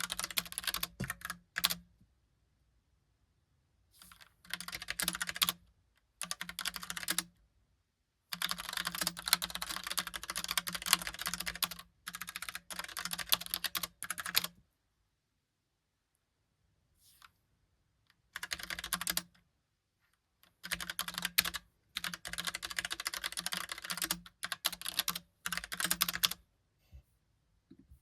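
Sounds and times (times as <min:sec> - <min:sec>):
mechanical keyboard typing: 0:00.0 - 0:01.8, 0:04.4 - 0:05.6, 0:06.2 - 0:07.3, 0:08.3 - 0:14.5, 0:18.4 - 0:19.3, 0:20.6 - 0:26.4.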